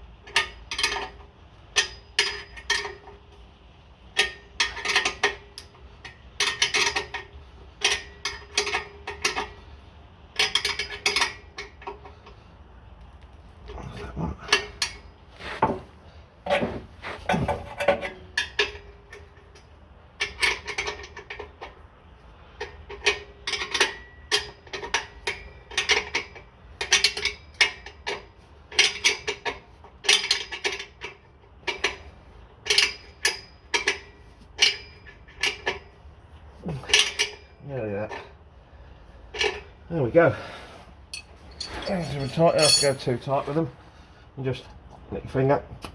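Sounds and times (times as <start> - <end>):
spanner clinking on metal nuts: 0.2 - 3.3, 4.1 - 9.6, 10.4 - 12.2, 17.6 - 21.8, 22.6 - 36.0, 36.8 - 38.3, 41.1 - 43.3.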